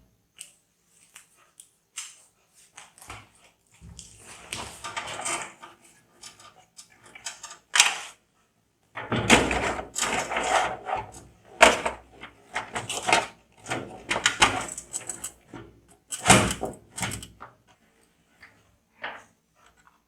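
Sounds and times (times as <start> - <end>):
clicks and knocks of computer parts: 11.6 - 17.5.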